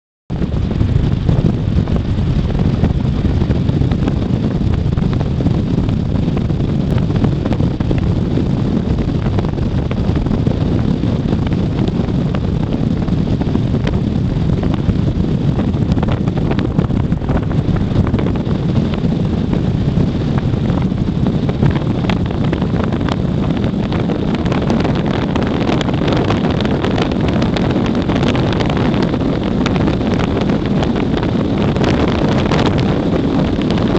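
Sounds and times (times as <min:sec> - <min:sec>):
wind buffeting microphone: 0:00.3 - 0:33.9.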